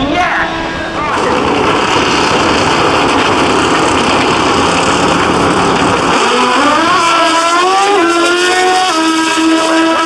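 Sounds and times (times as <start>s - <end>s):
drag motorcycles at full throttle: 0.0s - 10.0s.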